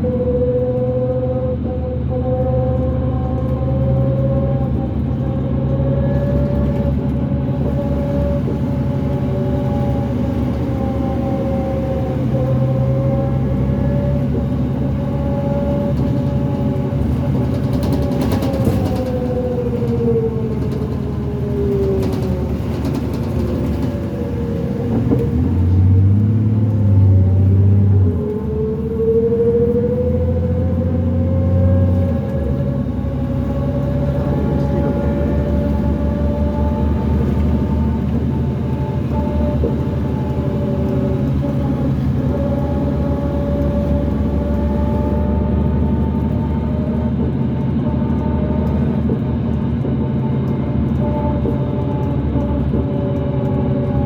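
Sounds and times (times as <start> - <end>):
bus axle whine: 0.0 - 54.0
bus engine pulling: 0.0 - 54.0.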